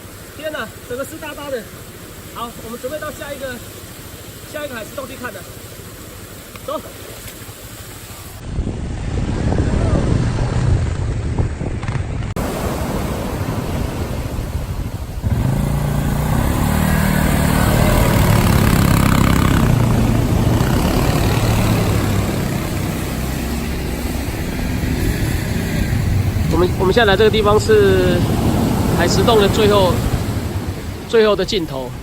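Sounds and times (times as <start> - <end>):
buggy engine running: 9.7 - 32.0.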